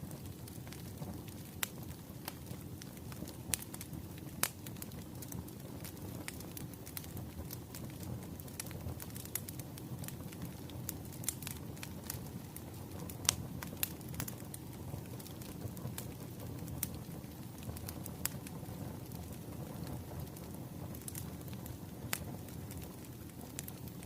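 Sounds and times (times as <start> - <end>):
firewood crackling and popping: 0.0 - 24.0.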